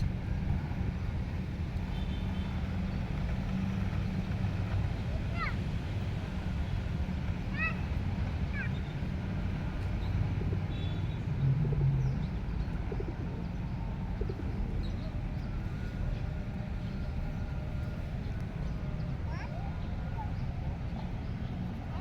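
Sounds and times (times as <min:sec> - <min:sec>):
pigeons cooing: 0:09.8 - 0:15.2.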